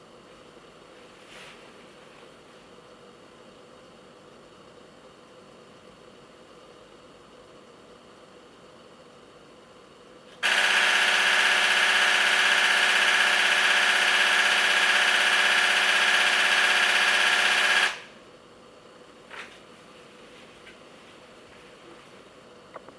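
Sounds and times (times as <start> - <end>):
camera shutter burst: 10.4 - 18.1.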